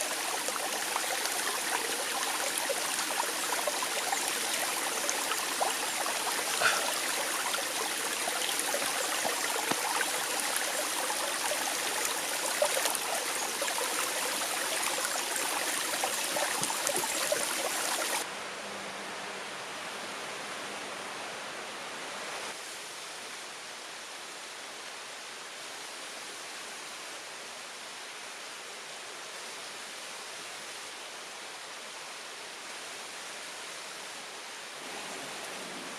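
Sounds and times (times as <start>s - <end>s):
stream water rushing: 0.0s - 18.5s, 29.6s - 35.9s.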